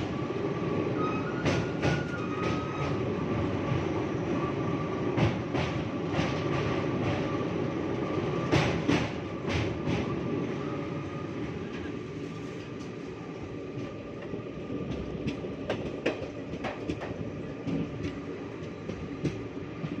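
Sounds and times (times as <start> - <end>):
train wheels rumbling on rail: 0.0 - 20.0
wheels clicking over rail joints: 13.8 - 20.0.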